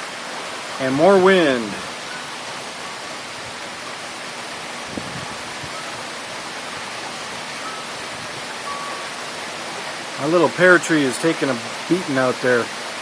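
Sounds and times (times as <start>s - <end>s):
heavy rain pouring: 0.0s - 13.0s
strong wind: 3.2s - 9.0s.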